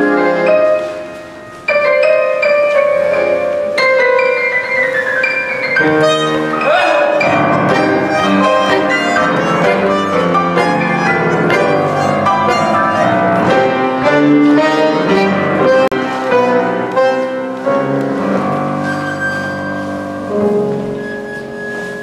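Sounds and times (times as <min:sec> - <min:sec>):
bandoneon chords: 0:00.0 - 0:22.0
piano: 0:00.0 - 0:22.0.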